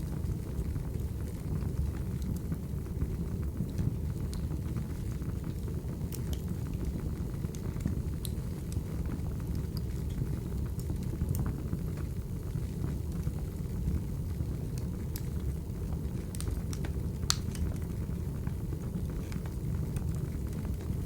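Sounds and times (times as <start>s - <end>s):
low rumble of flames: 0.0s - 21.0s
logs popping and crackling: 16.2s - 17.9s.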